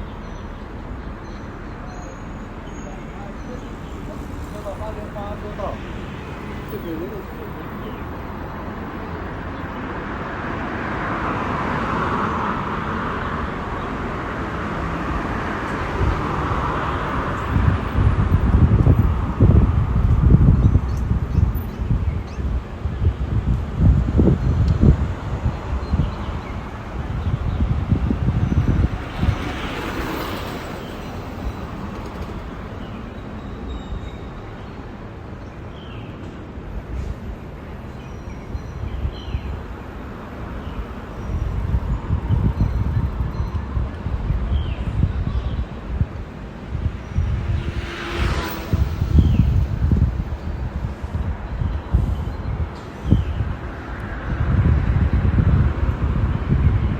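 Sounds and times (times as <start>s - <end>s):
passing vehicles: 0.0s - 56.9s
wind buffeting microphone: 2.4s - 56.9s.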